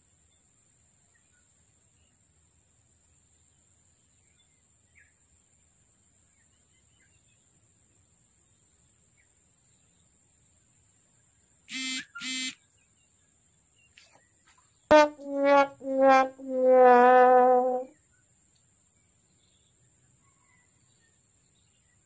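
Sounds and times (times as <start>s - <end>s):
high-pitched insect drone: 11.7s - 12.5s
loud horn-like blasts: 11.7s - 12.6s, 14.9s - 17.9s
faint bird chirps: 11.7s - 13.0s, 20.3s - 21.9s.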